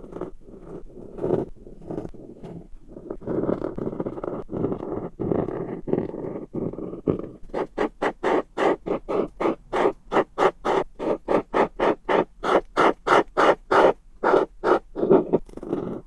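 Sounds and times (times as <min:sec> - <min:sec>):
scratchy coloring strokes: 0:00.0 - 0:16.0.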